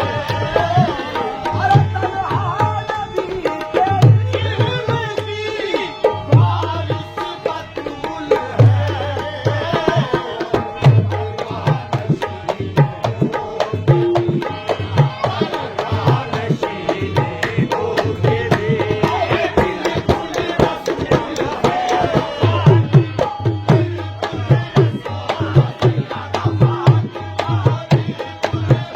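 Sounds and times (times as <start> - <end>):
dholak hand drum: 0.0 - 28.9.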